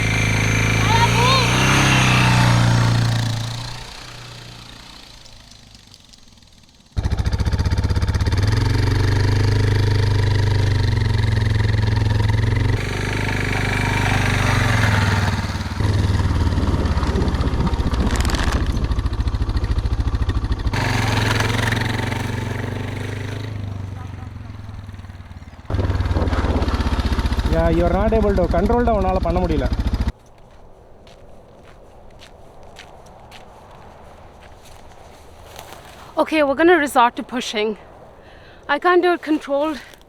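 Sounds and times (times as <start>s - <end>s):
motorcycle engine running: 0.0s - 30.2s.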